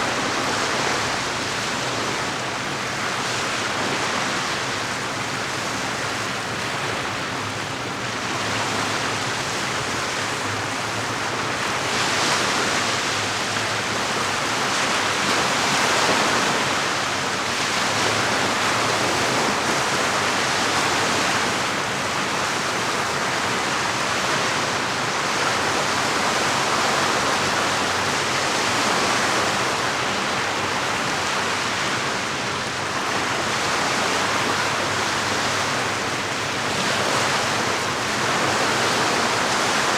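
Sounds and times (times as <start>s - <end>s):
lake waves washing on shore: 0.0s - 39.9s.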